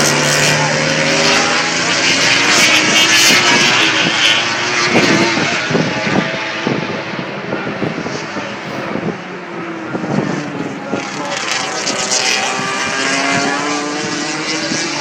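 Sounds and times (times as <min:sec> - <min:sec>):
racing motorcycle engine high revs: 0:00.0 - 0:08.6, 0:09.9 - 0:15.0.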